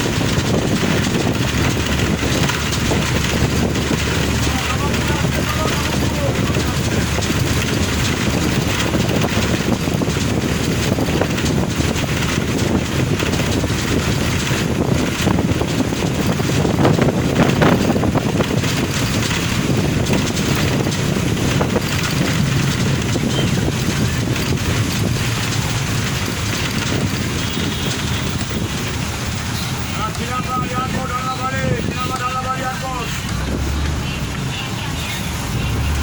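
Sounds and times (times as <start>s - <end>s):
tyres hissing on wet road: 32.4s - 36.0s.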